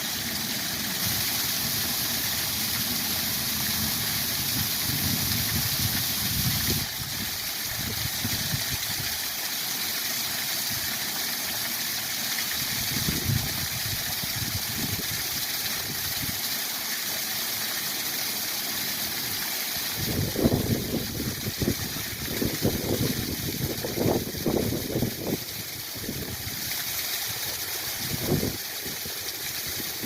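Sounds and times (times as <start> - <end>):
wind buffeting microphone: 20.0 - 25.4, 28.0 - 29.0.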